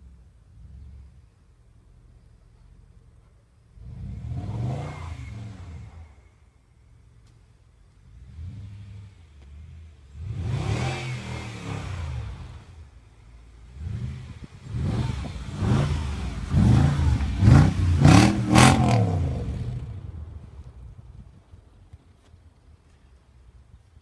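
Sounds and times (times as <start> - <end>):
car engine revving: 3.8 - 6.3, 8.0 - 12.9, 13.5 - 20.3.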